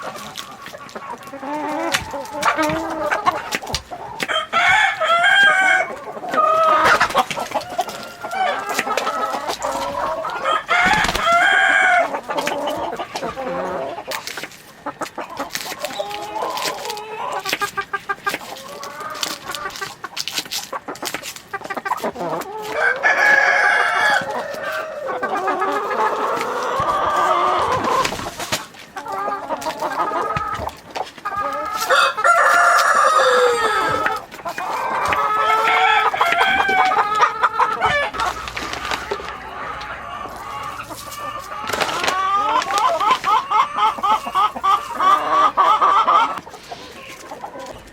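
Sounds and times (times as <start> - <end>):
chickens clucking: 0.0 - 47.9
rooster crowing: 4.3 - 6.0, 7.6 - 9.3, 10.0 - 12.1, 22.7 - 25.2, 31.8 - 34.1, 35.4 - 37.0.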